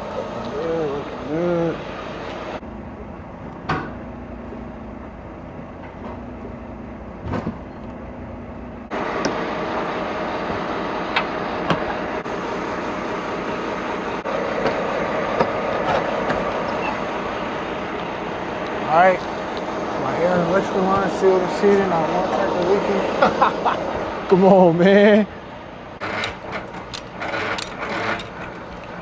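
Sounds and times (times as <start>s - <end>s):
truck idling: 0.0s - 29.0s
sharp clicks and knocks: 9.2s - 12.2s, 14.5s - 19.7s, 26.0s - 29.0s.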